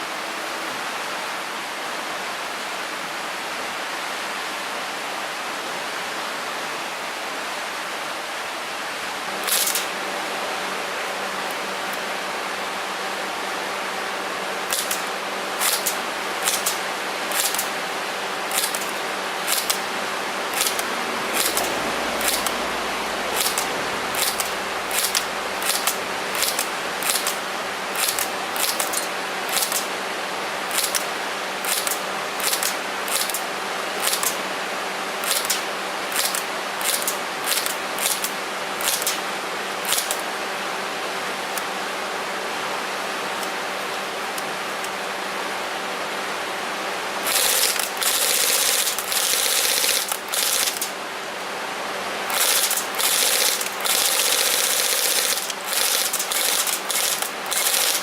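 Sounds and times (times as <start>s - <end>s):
faint hum: 10.2s - 31.7s
airsoft gun snaps: 14.7s - 17.7s, 19.5s - 19.8s, 23.4s - 27.4s, 39.9s - 40.2s.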